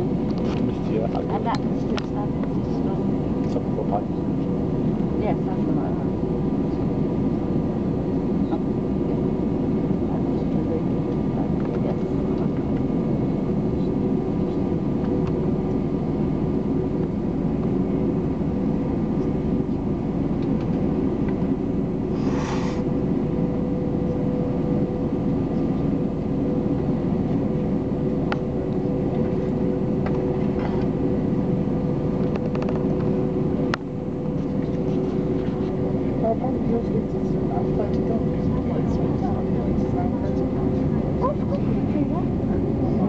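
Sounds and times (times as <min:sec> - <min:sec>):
airliner cabin drone: 0:00.0 - 0:43.0
short hiss: 0:22.2 - 0:22.9.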